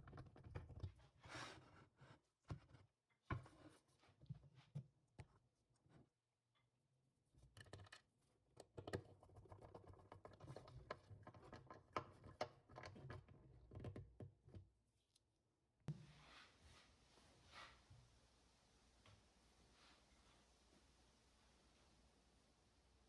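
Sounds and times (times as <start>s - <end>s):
light clicks taps and scratching: 0.0s - 1.2s, 7.4s - 14.8s.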